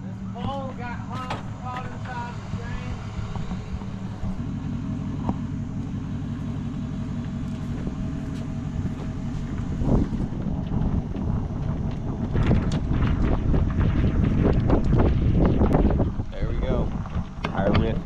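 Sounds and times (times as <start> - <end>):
motor running: 0.0 - 18.0
heavy thump: 0.4 - 4.4.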